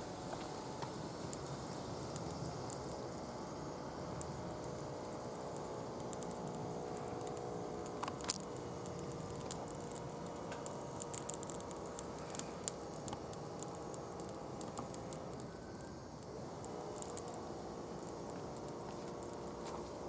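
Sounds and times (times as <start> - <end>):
faint steady hum: 0.0 - 20.0
wood fire crackling and popping: 0.0 - 20.0.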